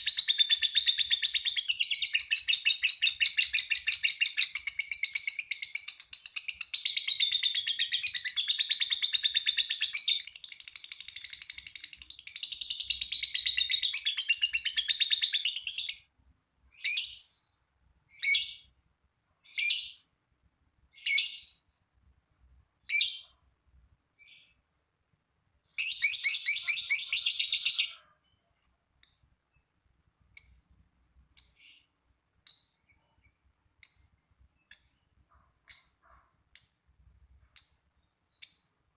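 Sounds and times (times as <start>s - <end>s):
lovebird chattering song: 0.0s - 16.0s, 25.8s - 28.0s, 30.4s - 30.7s, 31.4s - 32.9s, 33.8s - 35.1s, 35.7s - 36.8s, 37.6s - 38.8s
bird chirps: 0.0s - 16.1s, 16.7s - 18.7s, 19.4s - 20.1s, 20.9s - 21.9s, 22.8s - 23.4s, 24.2s - 24.6s, 25.6s - 38.8s.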